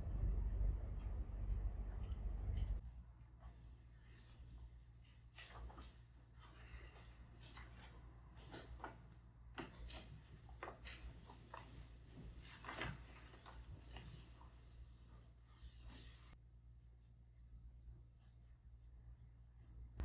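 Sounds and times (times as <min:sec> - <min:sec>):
small clicks and rustles: 0:05.4 - 0:14.6.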